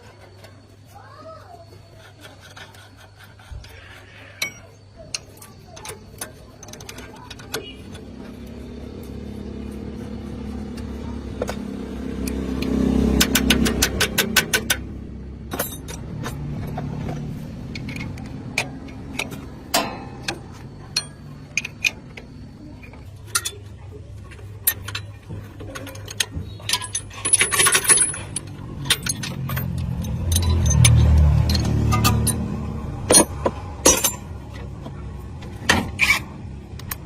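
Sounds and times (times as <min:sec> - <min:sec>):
sharp metallic clicks: 0:11.5 - 0:16.8, 0:24.6 - 0:34.7.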